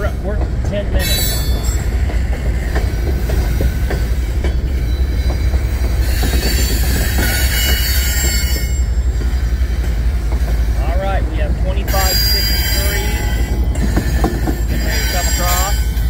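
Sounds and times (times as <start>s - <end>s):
wheels clicking over rail joints: 0.0s - 10.7s, 11.4s - 16.0s
train cars rumbling past: 0.0s - 16.0s
high hissing wheel squeal: 4.1s - 9.8s, 11.9s - 15.9s.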